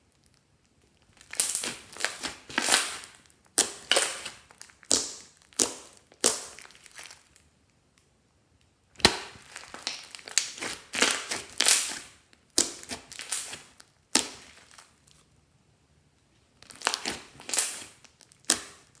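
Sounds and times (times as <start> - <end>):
slime squishing and popping: 1.1 - 7.4, 9.0 - 14.9, 16.6 - 19.0.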